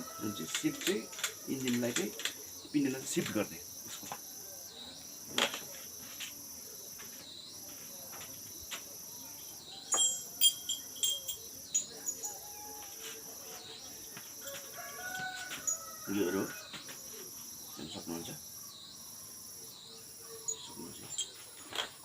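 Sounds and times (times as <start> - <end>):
crickets chirring: 0.0 - 22.0
metal parts clinking: 9.9 - 12.4.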